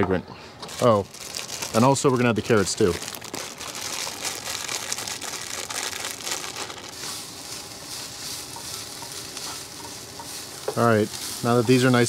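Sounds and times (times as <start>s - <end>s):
vegetables sizzling in oil: 2.8s - 12.0s.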